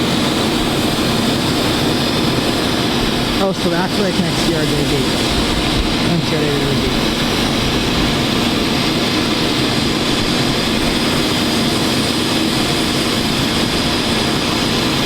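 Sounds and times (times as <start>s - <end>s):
jet engines idling: 0.0s - 15.0s.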